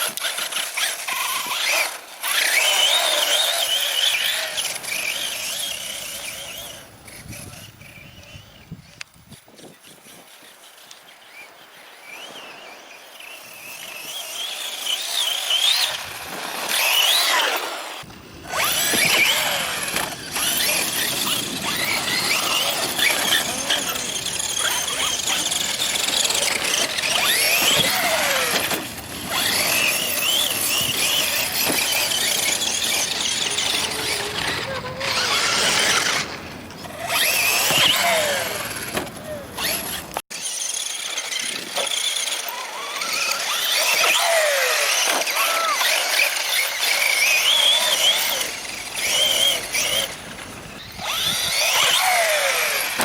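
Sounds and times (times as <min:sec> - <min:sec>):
electric motor high whine: 0:12.0 - 0:53.0.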